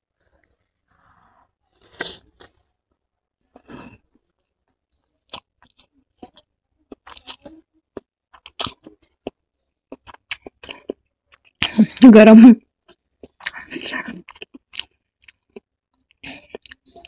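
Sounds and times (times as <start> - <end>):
person chewing noodles: 1.8 - 2.6, 5.2 - 12.0, 12.8 - 17.0
person speaking: 11.7 - 12.6.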